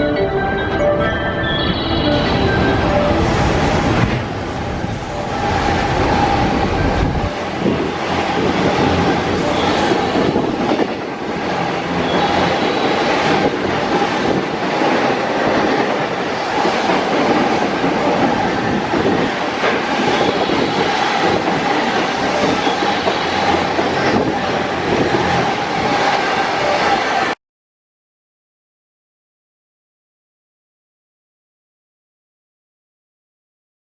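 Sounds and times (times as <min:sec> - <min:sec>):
train wheels on track: 0:01.7 - 0:27.4.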